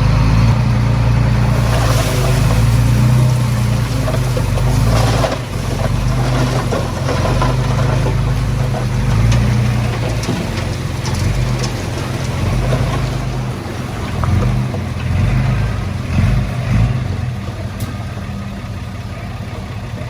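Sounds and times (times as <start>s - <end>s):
bulldozer diesel engine running: 0.0s - 20.0s
metal clanks and scrapes: 1.4s - 15.2s.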